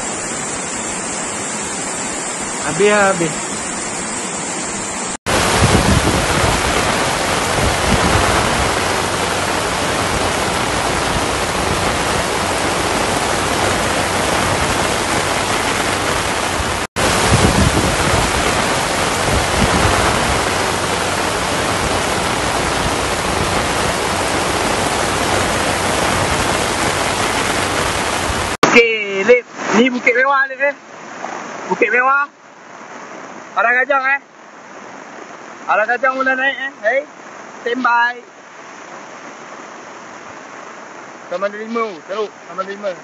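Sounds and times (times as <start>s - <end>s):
floodwater rushing over wall: 0.0s - 43.0s
heavy rain on umbrella: 5.0s - 30.0s.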